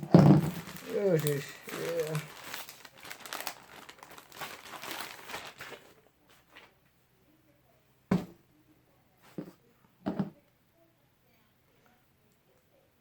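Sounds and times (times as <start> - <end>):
plastic packaging crinkling: 0.2 - 6.7.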